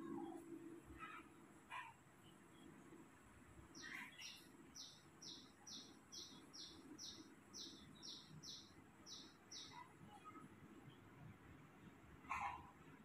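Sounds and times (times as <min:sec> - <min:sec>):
small bird chirping: 0:03.7 - 0:11.1.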